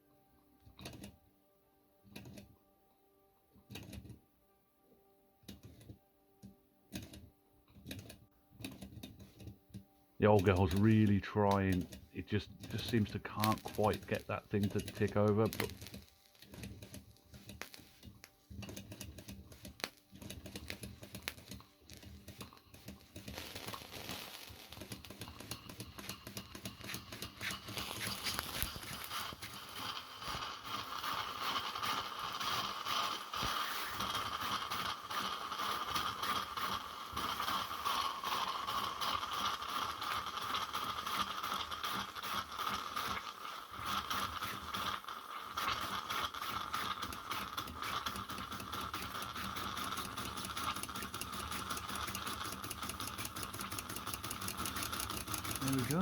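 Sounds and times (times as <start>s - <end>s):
toy steam engine ticking: 10.2s - 17.6s, 24.7s - 56.0s
steam hiss: 12.2s - 16.1s, 20.6s - 56.0s.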